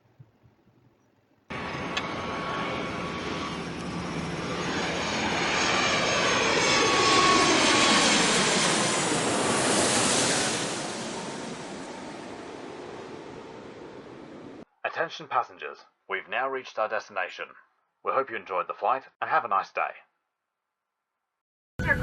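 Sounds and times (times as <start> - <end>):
jet airliner engine passing: 1.5 - 14.6.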